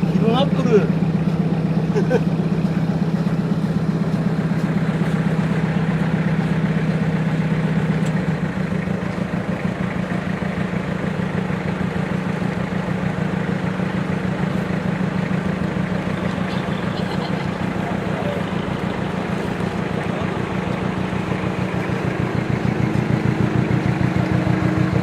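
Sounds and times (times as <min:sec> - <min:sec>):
engine humming: 0:00.0 - 0:25.0.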